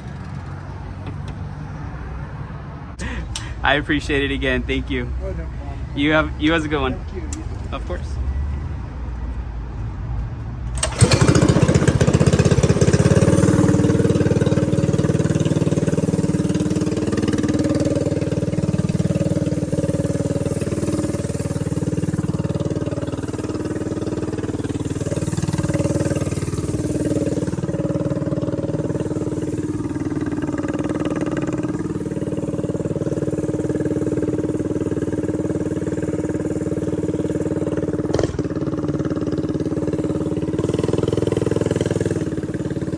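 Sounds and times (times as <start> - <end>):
small motorbike engine revving: 10.7 - 42.9.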